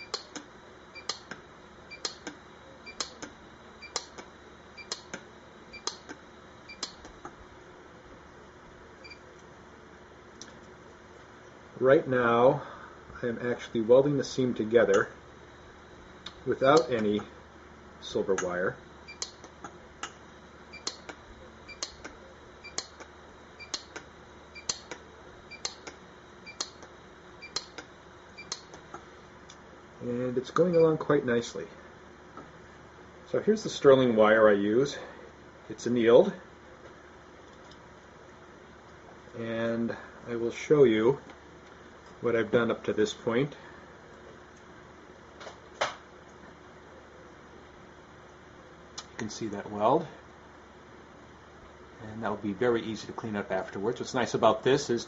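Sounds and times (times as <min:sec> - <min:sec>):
micro welder clicks: 0:00.0 - 0:01.4, 0:02.0 - 0:06.2, 0:06.8 - 0:07.4, 0:19.2 - 0:20.2, 0:20.8 - 0:26.0, 0:26.6 - 0:29.6.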